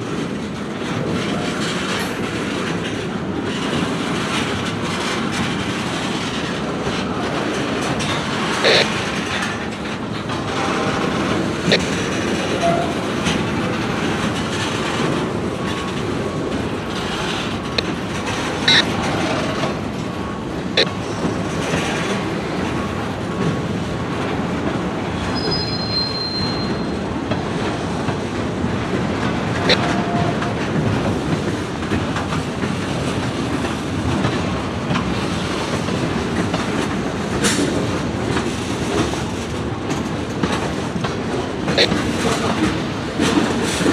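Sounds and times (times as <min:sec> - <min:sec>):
freight train cars rolling on rails: 0:00.0 - 0:43.9
wheels clicking on rails: 0:00.0 - 0:43.9
high wheel squeal: 0:18.6 - 0:18.8, 0:25.4 - 0:27.0.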